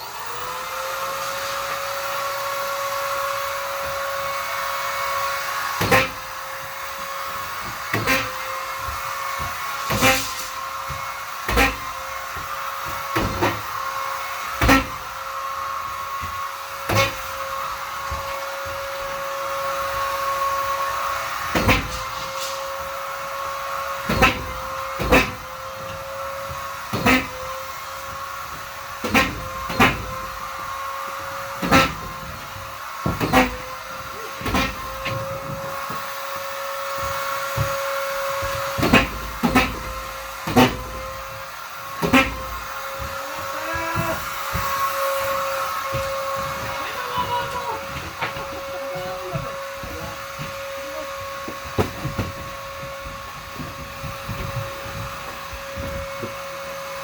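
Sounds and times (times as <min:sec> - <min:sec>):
vacuum cleaner whining hum: 0:00.0 - 0:57.0
sharp knocks and clacks: 0:42.0 - 0:56.6.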